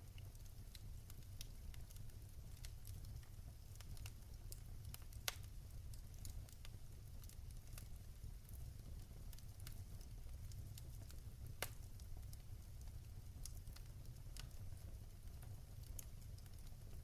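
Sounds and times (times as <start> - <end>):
fire crackling in a fireplace: 0.0 - 17.0.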